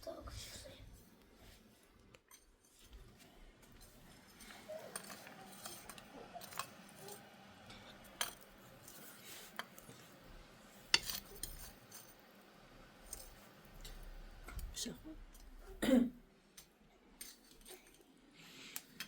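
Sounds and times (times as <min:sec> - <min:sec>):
kitchenware clinking and knocking: 0:03.7 - 0:09.7, 0:10.9 - 0:12.3.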